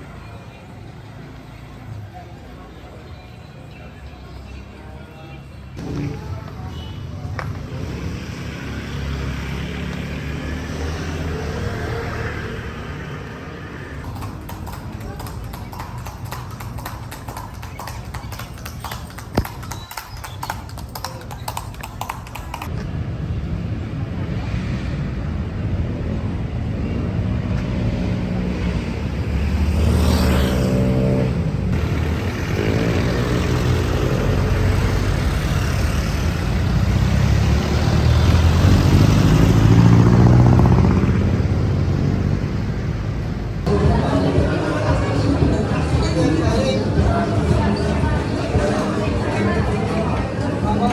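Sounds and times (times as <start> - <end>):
vehicle engines passing: 0.0 - 50.9
horse hooves on pavement: 14.0 - 22.8.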